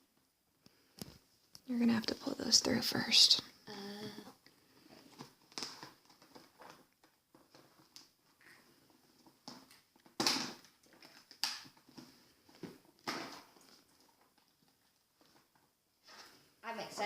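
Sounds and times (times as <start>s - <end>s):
plastic packaging rustling and clicking: 4.3s - 16.5s.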